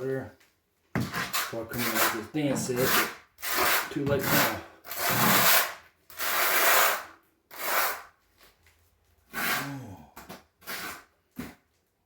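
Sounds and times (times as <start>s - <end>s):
trowel scraping mortar: 1.0s - 8.2s, 9.2s - 11.6s.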